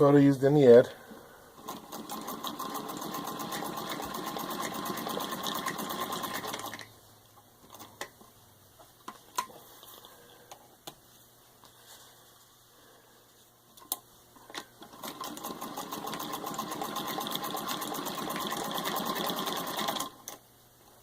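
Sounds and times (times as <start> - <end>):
sewing machine stitching: 1.6 - 6.9, 14.8 - 20.4.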